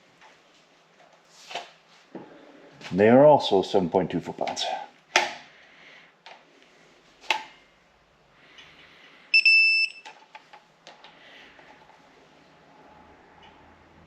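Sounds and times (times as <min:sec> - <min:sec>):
torque wrench beep: 0:09.3 - 0:10.1.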